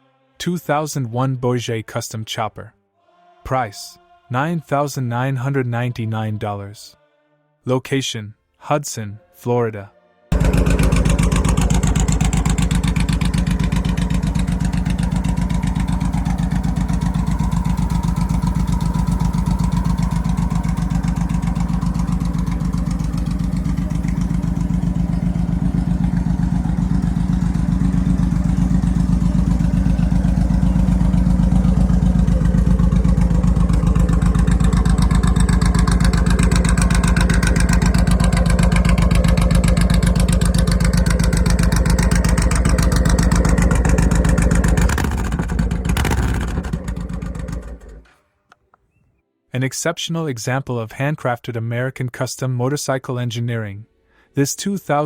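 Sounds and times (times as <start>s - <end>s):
motorcycle engine idling: 10.3s - 48.2s.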